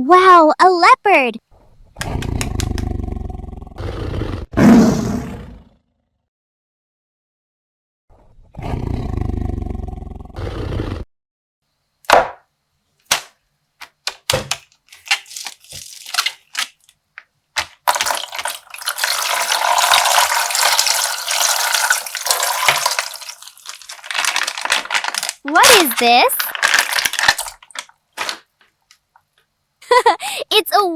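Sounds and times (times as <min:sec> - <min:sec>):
plastic bag crinkling: 0:13.1 - 0:17.0, 0:17.6 - 0:29.0
water pouring: 0:17.6 - 0:28.4.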